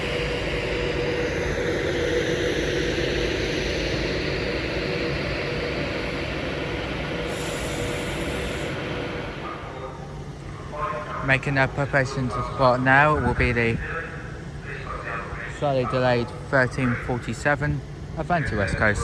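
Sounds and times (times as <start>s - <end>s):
high whine falling in pitch: 0.0s - 10.3s
electric train rumble: 0.0s - 19.0s.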